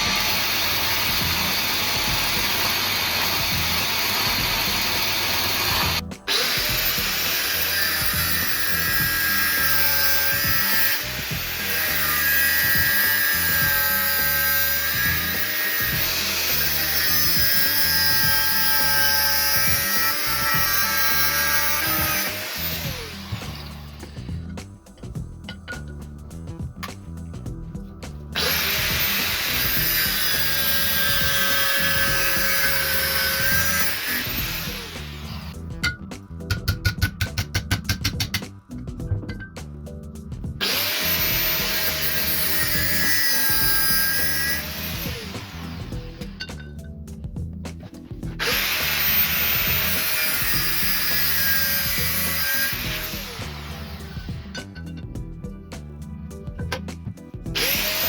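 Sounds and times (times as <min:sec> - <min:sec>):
power tool whining: 0:00.0 - 0:25.1, 0:28.3 - 0:35.6, 0:40.6 - 0:46.6, 0:48.2 - 0:55.0, 0:57.5 - 0:58.0
background music: 0:00.0 - 0:58.0
sharp clicks and taps: 0:35.8 - 0:39.7.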